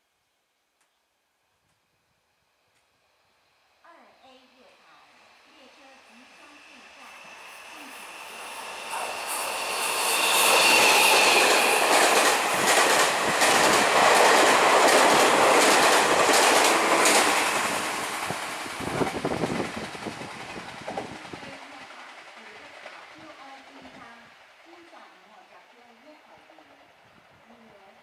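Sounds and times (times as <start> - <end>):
high whine of train: 2.4 - 28.0
passenger train passing: 3.1 - 28.0
wheels clacking over rail joints: 10.5 - 21.2.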